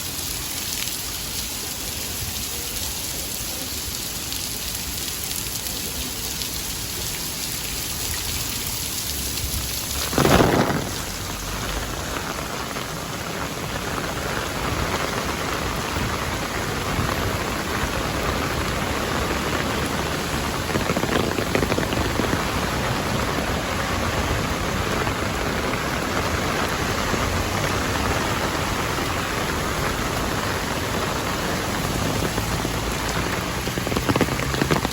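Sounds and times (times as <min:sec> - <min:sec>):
rain falling: 0:00.0 - 0:34.9
sudden loud burst of noise: 0:10.0 - 0:11.6.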